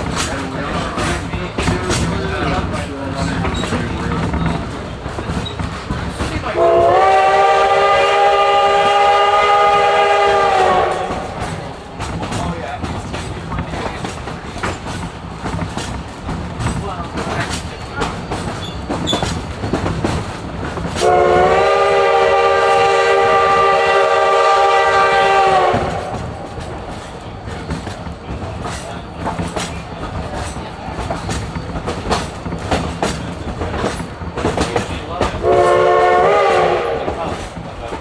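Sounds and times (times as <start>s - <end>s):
train wheels clattering on rails: 0.0s - 38.0s
steam locomotive whistle blast: 6.6s - 11.6s, 21.0s - 26.4s, 35.4s - 37.4s.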